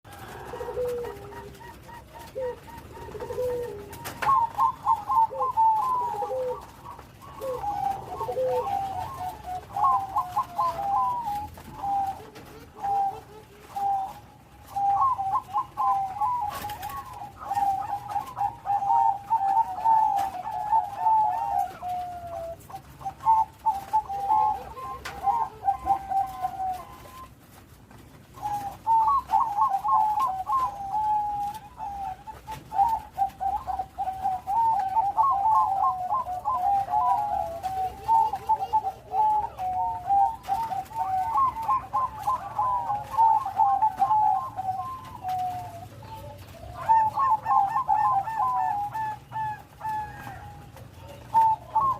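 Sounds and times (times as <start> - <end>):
dove cooing: 0.0 - 51.9.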